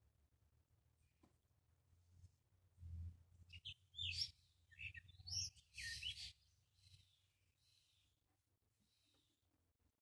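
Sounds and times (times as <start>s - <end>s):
songbird chirps and whistles: 3.5s - 7.8s.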